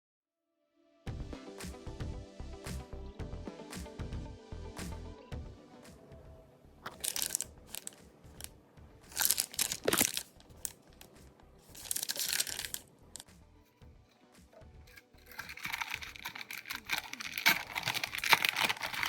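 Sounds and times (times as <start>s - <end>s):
faint background music: 0.9s - 19.0s
plastic packaging crinkling: 6.9s - 8.5s, 9.1s - 12.9s, 14.9s - 19.0s.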